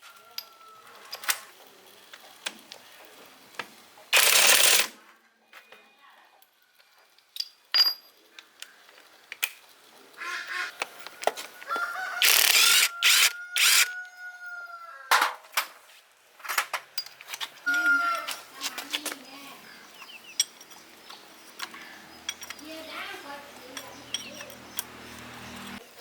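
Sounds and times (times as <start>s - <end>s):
rooster crowing: 0.0s - 1.1s, 11.2s - 15.1s
tool clicks: 12.2s - 14.0s.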